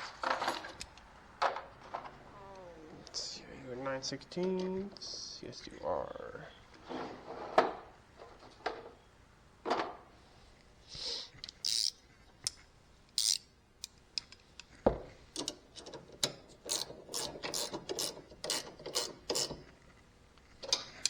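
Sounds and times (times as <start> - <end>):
ratchet wrench clicking: 11.4 - 12.0, 13.2 - 14.4, 16.2 - 19.6.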